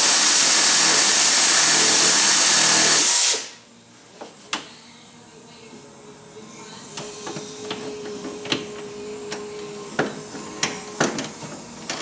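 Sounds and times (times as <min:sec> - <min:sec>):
air tool whine: 0:00.0 - 0:03.6, 0:06.6 - 0:12.0.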